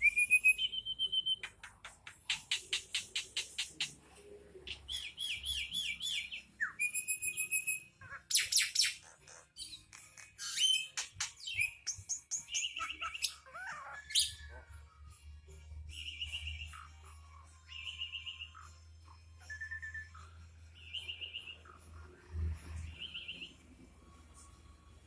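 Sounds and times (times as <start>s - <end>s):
starling singing: 4.7s - 14.5s.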